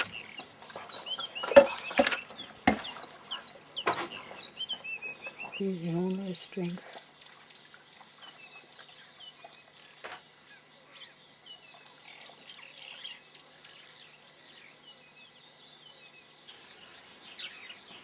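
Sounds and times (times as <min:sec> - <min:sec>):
bird chirps: 0:00.0 - 0:06.8.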